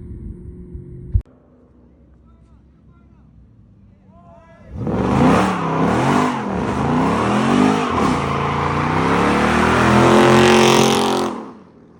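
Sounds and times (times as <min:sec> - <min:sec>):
car engine revving: 0:04.7 - 0:11.9.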